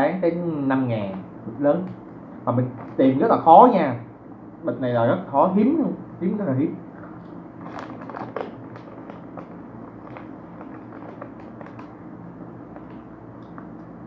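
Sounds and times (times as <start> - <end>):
steady low hum: 0.0 - 14.0
crunchy snack being chewed: 7.0 - 12.0.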